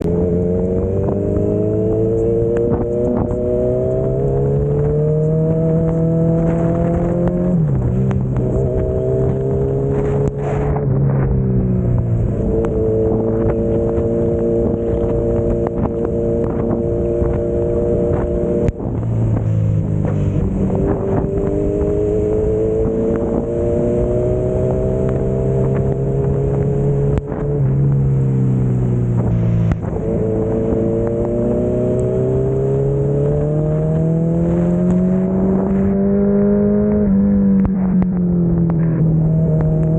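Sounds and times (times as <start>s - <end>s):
motorcycle engine accelerating: 0.0s - 39.9s
wind rushing over microphone: 0.0s - 39.9s.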